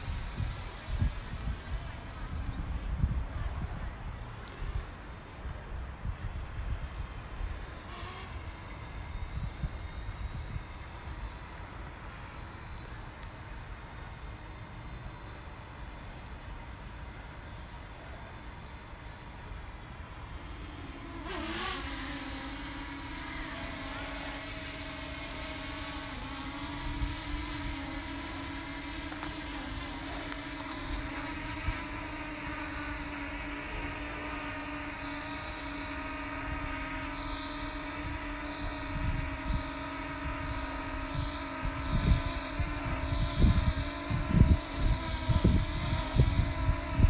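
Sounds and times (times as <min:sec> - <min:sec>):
wind rumbling on microphone: 0:00.0 - 0:04.9, 0:37.8 - 0:47.0
drone propellers whirring: 0:00.0 - 0:47.0.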